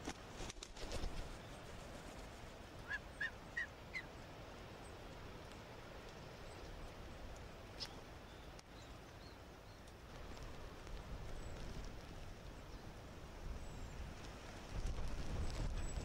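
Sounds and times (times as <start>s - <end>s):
faint outdoor hiss: 0.0s - 16.0s
bird calling: 2.8s - 4.1s.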